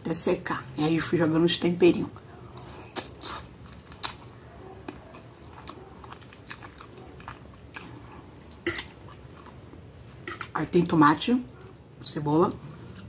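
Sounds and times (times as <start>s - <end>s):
person chewing: 2.5s - 10.6s.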